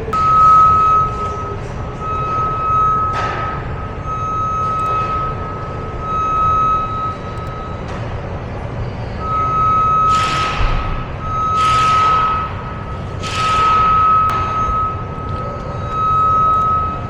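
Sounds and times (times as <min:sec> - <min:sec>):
electronic beep: 0:00.1 - 0:17.0.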